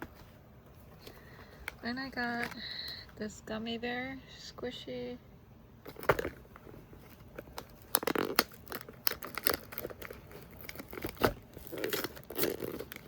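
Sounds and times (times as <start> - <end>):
plastic wrapper crinkling and tearing: 7.2 - 13.0
plastic wrapper snap: 7.5 - 13.0.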